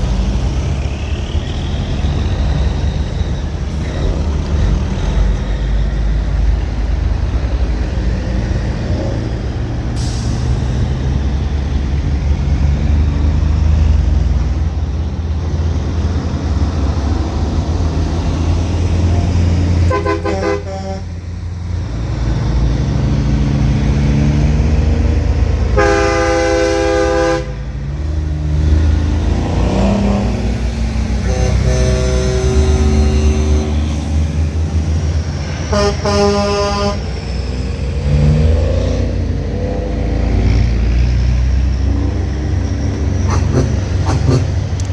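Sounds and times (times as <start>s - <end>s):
diesel truck engine running: 0.0s - 44.9s
truck horn blasts: 19.8s - 21.2s, 25.7s - 27.7s, 30.0s - 34.0s, 35.6s - 37.2s, 43.2s - 44.6s.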